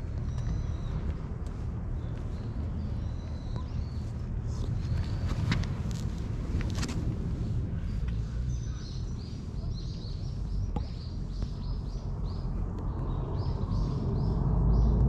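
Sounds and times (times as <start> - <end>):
low rumble of outdoor noise: 0.0 - 15.0
small bird chirping: 0.2 - 1.0.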